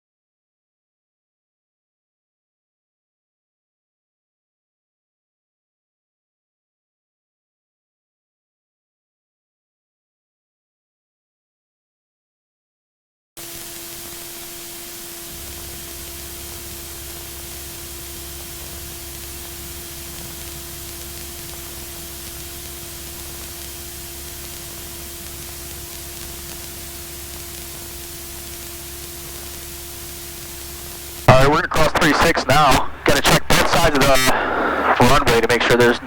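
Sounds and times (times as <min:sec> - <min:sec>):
constant humming tone: 0:13.4 - 0:36.0
radio static hiss: 0:13.4 - 0:36.0
deep low hum: 0:13.8 - 0:31.3.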